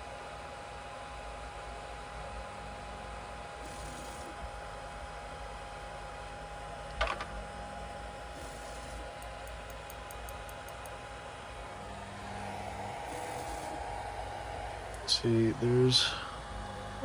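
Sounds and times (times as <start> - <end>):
printer fans humming: 0.0 - 17.0
faint high whine: 8.2 - 17.0.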